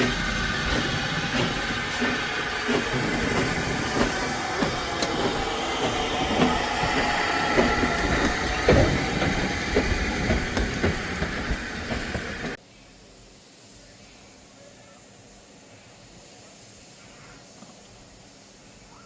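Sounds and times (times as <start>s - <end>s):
train wheels clattering: 0.0s - 12.6s.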